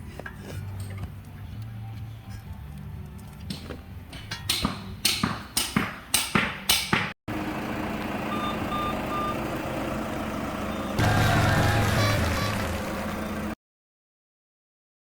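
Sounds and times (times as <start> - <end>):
vehicle running noise: 6.7 - 13.6.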